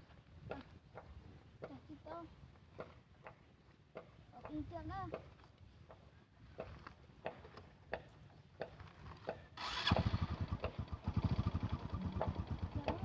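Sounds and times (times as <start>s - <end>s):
motorbike engine starting and idling: 9.6s - 13.0s.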